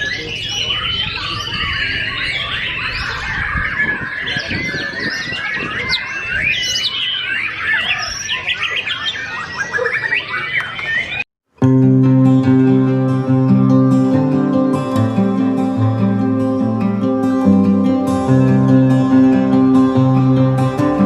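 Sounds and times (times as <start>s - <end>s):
bird singing whistles and trills: 0.0s - 11.2s.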